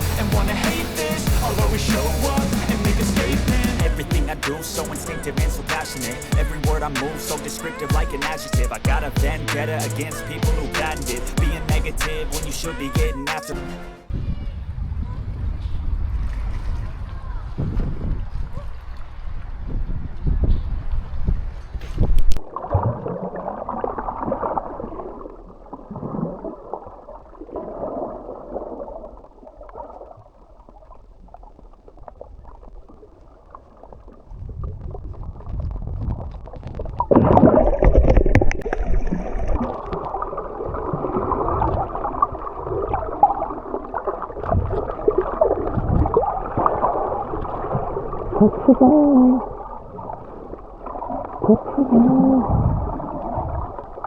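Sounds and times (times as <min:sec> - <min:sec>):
underwater gurgling and bubbles: 0:16.0 - 0:54.0.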